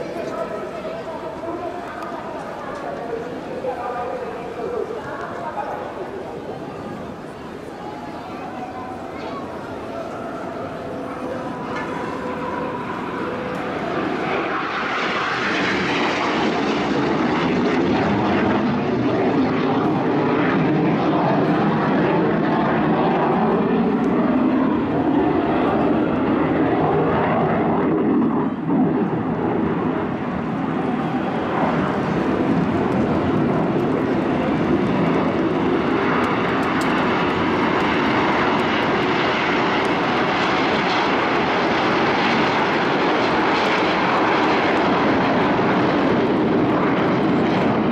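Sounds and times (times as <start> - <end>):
jets flying past: 11.6 - 47.9.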